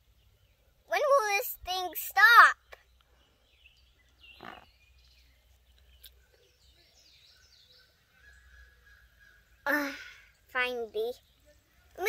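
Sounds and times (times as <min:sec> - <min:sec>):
faint bird calls: 0:02.7 - 0:10.5.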